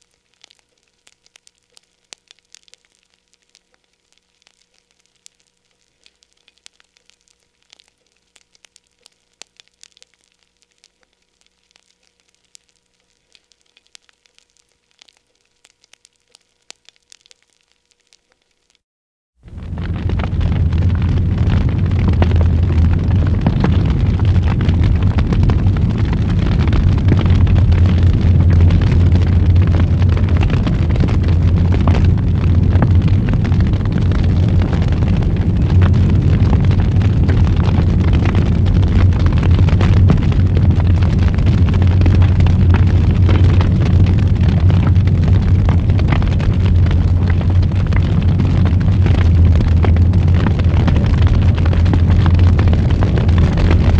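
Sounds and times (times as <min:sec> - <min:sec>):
wood fire crackling and popping: 0:00.0 - 0:18.8, 0:19.4 - 0:53.9
fire low rumble: 0:19.4 - 0:53.9.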